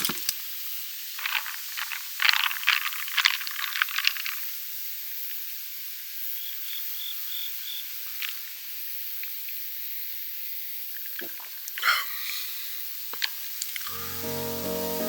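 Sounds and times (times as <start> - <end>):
steady high hiss: 13.9 - 15.0.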